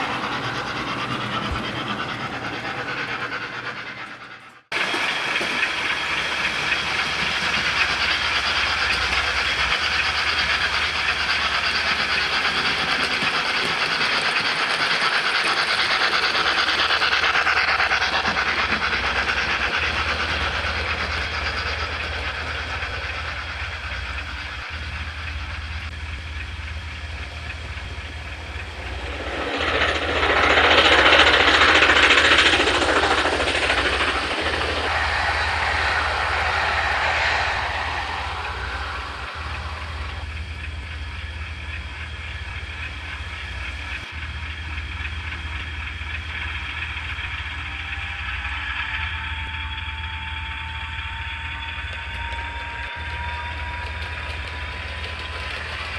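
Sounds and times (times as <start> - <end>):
low rumble of passing train: 0.0 - 55.9
train rushing: 0.0 - 55.9
faint rising whine: 18.5 - 42.4.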